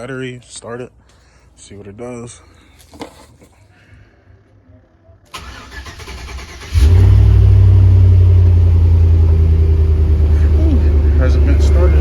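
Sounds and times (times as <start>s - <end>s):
truck engine starting and running: 5.3s - 12.0s.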